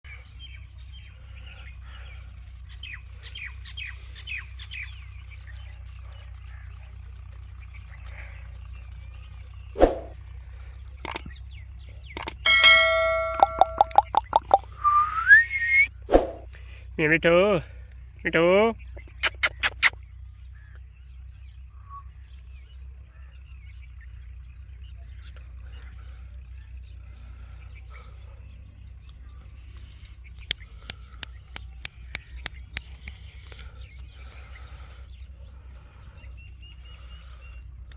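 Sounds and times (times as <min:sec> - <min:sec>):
steady low hum: 0:00.0 - 0:19.2, 0:20.0 - 0:37.9
parrot chirping: 0:12.5 - 0:14.7, 0:19.1 - 0:19.9.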